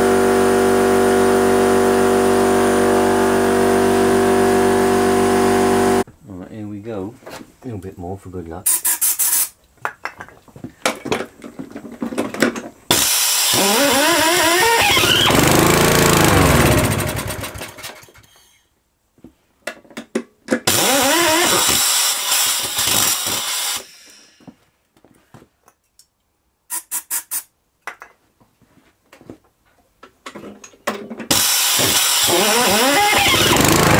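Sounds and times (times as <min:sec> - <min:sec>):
starter cord rattling pulls: 0:12.2 - 0:18.0, 0:31.3 - 0:33.9
lawnmower engine pull-starting: 0:12.2 - 0:18.3, 0:20.7 - 0:23.8, 0:31.3 - 0:33.9.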